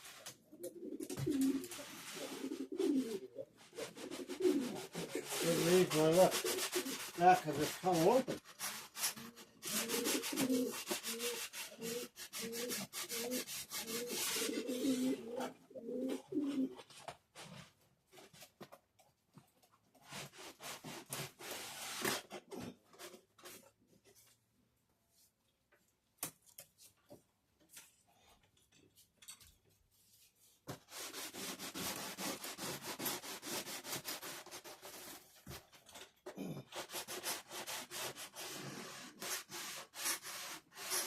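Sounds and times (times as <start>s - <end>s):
track cleaner scrubbing rails: 5.0s - 8.3s.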